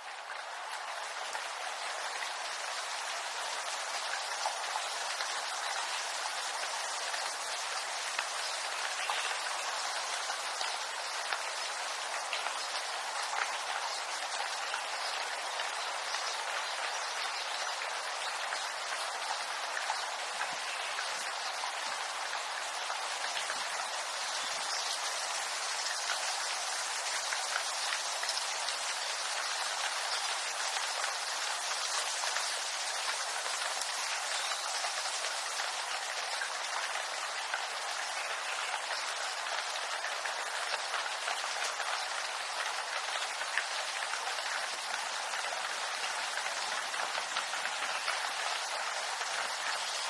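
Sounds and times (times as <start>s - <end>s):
rain on bamboo leaves: 0.0s - 50.0s.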